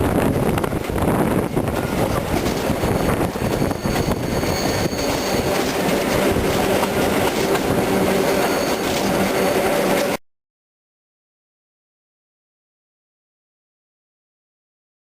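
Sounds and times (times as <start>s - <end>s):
train wheel and rail noise: 0.0s - 10.2s
high wheel squeal: 1.8s - 10.2s.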